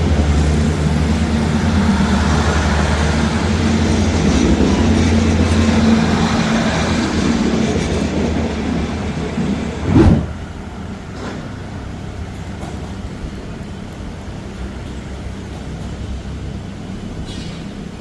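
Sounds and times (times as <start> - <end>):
diesel train engine drone: 0.0 - 18.0
train wheel rumble: 0.0 - 18.0
loud thump: 9.8 - 10.4.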